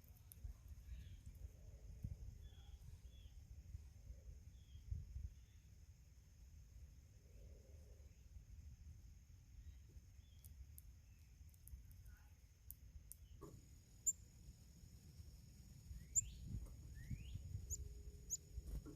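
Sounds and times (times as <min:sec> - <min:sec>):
bird chirps: 0:00.0 - 0:01.4, 0:09.6 - 0:11.7, 0:13.1 - 0:14.2, 0:15.9 - 0:18.6.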